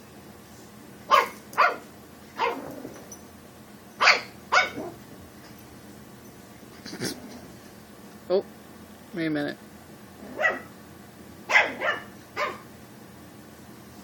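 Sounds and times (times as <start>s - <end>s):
puppy barking: 1.1s - 2.8s, 4.0s - 5.0s, 10.2s - 10.7s, 11.5s - 12.7s.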